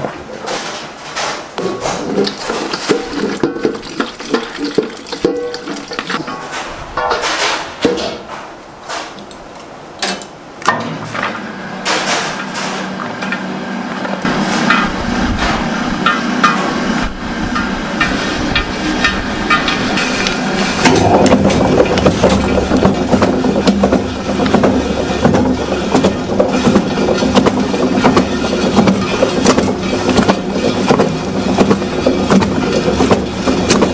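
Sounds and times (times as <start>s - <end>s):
sharp knocks and clatter: 0.0s - 9.2s, 14.2s - 16.8s, 17.5s - 33.9s
machine running: 11.1s - 33.9s.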